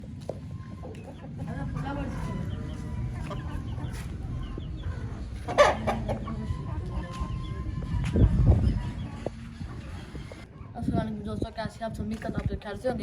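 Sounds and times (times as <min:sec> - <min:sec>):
low steady rumble: 0:00.0 - 0:13.0
rooster clucking: 0:00.5 - 0:10.5.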